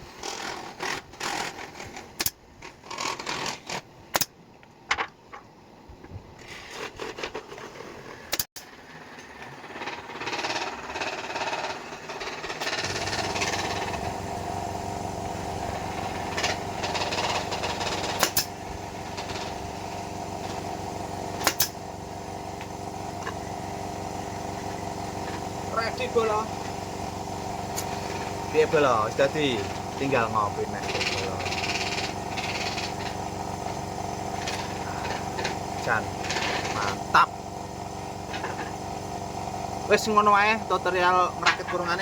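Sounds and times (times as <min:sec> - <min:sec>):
small engine idling: 0:08.6 - 0:42.0.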